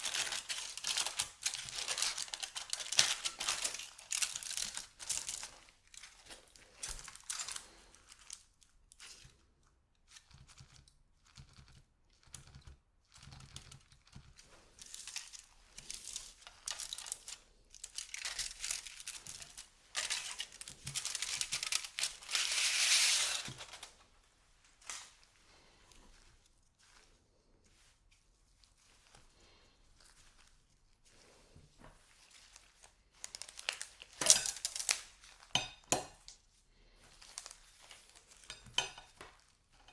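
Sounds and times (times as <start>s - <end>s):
wrapper crinkling and tearing: 0.0s - 9.2s, 14.4s - 25.6s, 32.1s - 36.4s, 37.1s - 39.9s.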